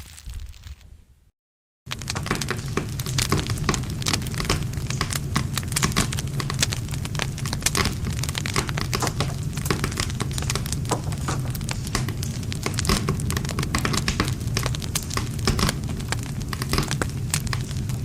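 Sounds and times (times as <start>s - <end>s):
low rush of flames: 1.9s - 18.0s
wood fire crackling and popping: 1.9s - 18.0s.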